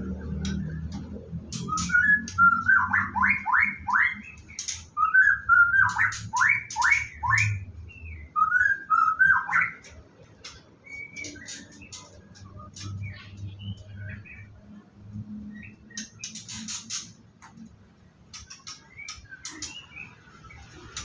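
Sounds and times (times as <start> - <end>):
bird whistling song: 1.5 - 10.0, 10.8 - 14.5, 18.4 - 20.8
bird sharp high ticks: 9.8 - 13.9, 15.7 - 19.8.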